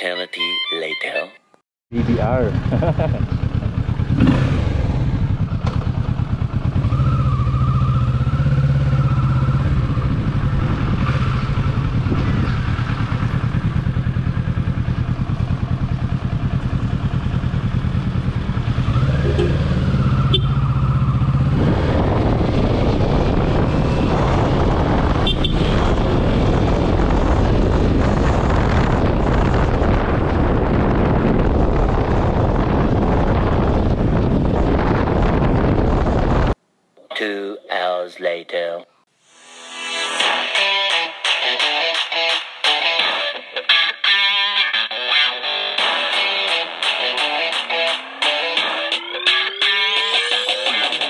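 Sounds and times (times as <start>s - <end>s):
road noise: 1.9s - 36.7s
motorcycle engine running: 2.0s - 36.6s
wind rushing: 8.7s - 13.7s, 18.7s - 36.6s.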